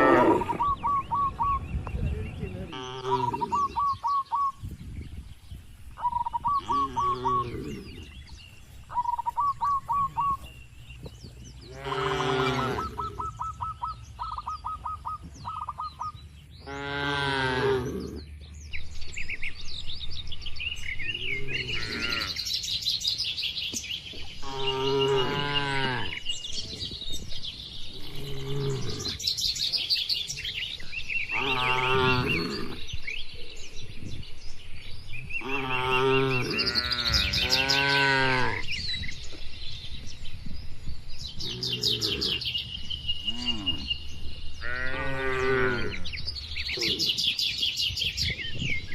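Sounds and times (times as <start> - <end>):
cattle mooing: 0.0 - 0.6, 2.7 - 3.8, 11.6 - 13.2, 16.6 - 18.1, 21.3 - 22.4, 31.3 - 32.8
birds chirping and whistling: 0.0 - 48.9.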